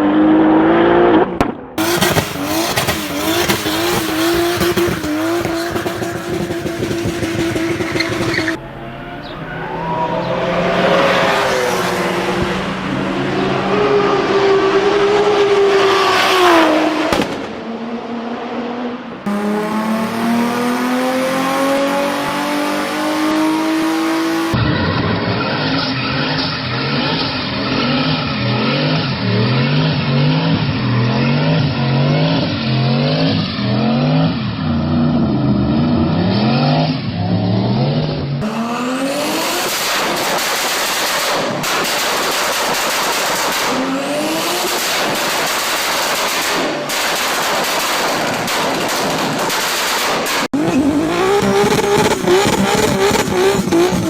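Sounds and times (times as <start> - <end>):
car engine revving: 0.0 - 54.0
tyres squealing: 1.8 - 11.0.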